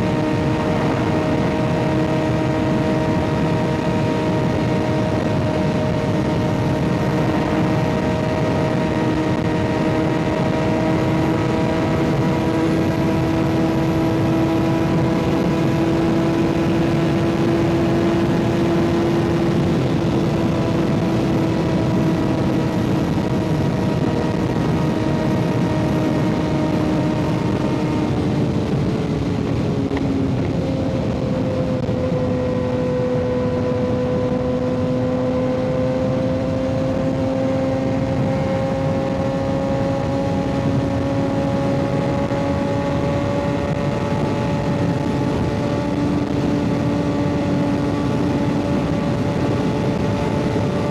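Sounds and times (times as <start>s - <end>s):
motorcycle engine cruising: 0.0s - 50.9s
wind noise: 0.0s - 50.9s.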